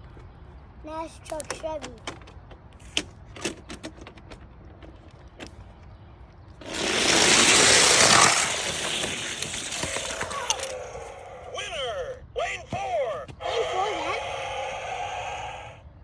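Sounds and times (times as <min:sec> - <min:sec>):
light clicks of toy cars: 0:01.1 - 0:05.9
toy cars rattling down track: 0:06.6 - 0:11.2.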